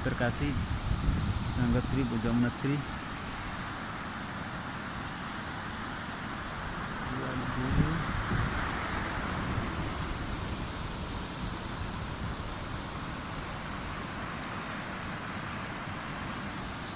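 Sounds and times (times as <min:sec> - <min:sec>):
wind on microphone: 0:00.0 - 0:03.8, 0:06.2 - 0:14.4
river rushing: 0:00.0 - 0:16.9.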